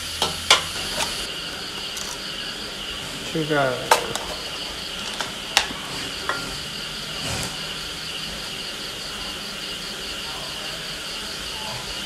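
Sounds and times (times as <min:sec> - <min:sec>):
shrimp sizzling in a wok: 0:00.0 - 0:12.0
seasoning bottles clicking: 0:00.2 - 0:02.2, 0:03.8 - 0:06.5.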